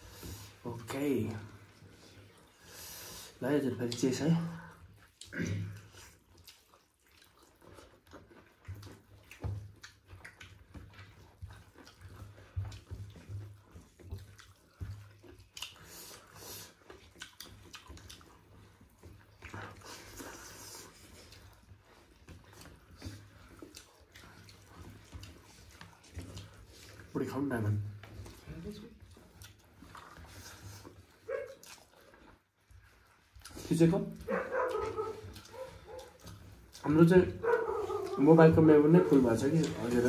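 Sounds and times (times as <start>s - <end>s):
people chewing food: 0.0s - 40.0s
mouth smacks and clicks: 5.0s - 21.5s.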